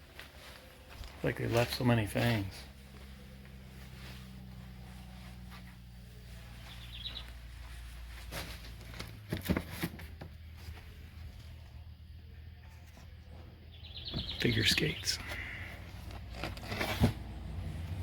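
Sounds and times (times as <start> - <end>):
footsteps: 0.0 - 9.6
faint chirp: 6.2 - 8.0, 12.2 - 15.8.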